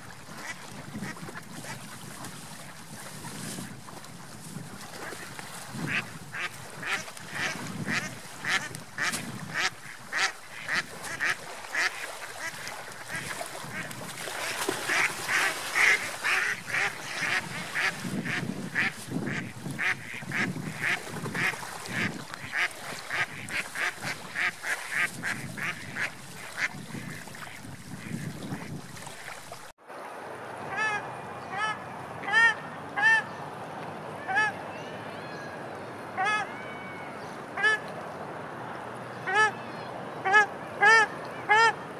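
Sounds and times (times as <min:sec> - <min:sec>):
geese honking: 0:05.9 - 0:28.2, 0:30.7 - 0:33.4, 0:34.2 - 0:34.6, 0:36.2 - 0:36.5, 0:37.6 - 0:37.9, 0:39.2 - 0:39.6, 0:40.2 - 0:41.8
ducks quacking: 0:05.9 - 0:29.4, 0:30.7 - 0:33.4, 0:34.2 - 0:34.6, 0:36.2 - 0:36.5, 0:37.6 - 0:37.9, 0:39.2 - 0:39.6, 0:40.2 - 0:41.8.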